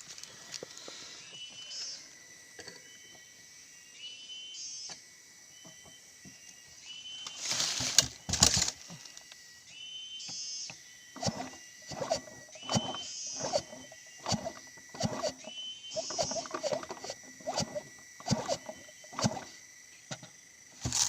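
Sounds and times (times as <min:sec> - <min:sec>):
chainsaw starter cord pulled: 0:11.2 - 0:19.6, 0:20.8 - 0:21.0.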